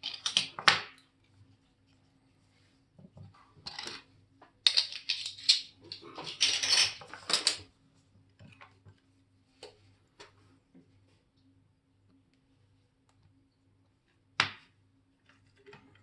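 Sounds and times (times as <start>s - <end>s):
faint steady hum: 0.0s - 16.0s
metal tools clinking and scraping: 4.7s - 7.6s.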